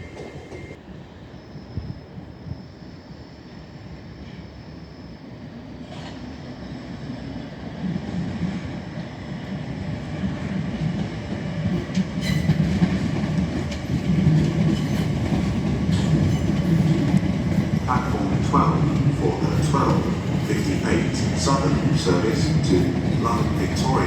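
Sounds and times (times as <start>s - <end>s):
train approaching: 0.0s - 24.0s
train wheels clacking over rail joints: 11.7s - 24.0s.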